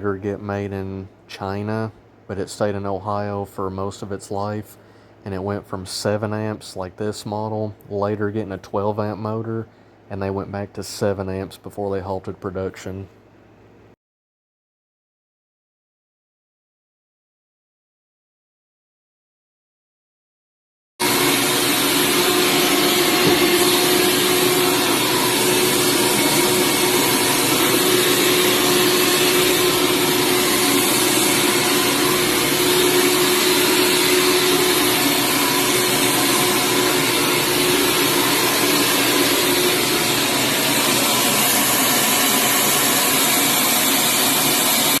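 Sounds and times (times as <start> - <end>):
carpet cleaner running: 21.0 - 45.0.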